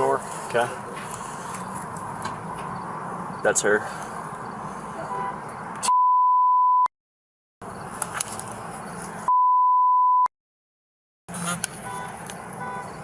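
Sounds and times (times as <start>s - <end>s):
censor bleeps: 5.8s - 6.9s, 9.3s - 10.3s.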